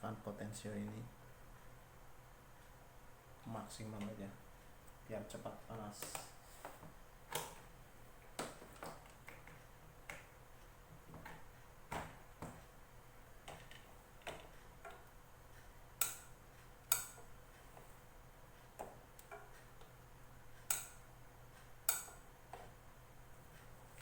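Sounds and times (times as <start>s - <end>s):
plastic clicks and light knocks: 8.3s - 10.3s, 13.4s - 15.1s.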